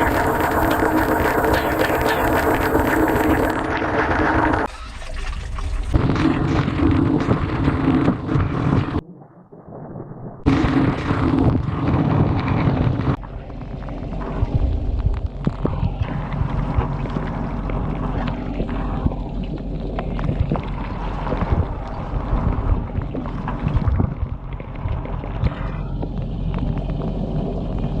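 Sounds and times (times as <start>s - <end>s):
dishwasher pump hum: 0.0s - 4.7s.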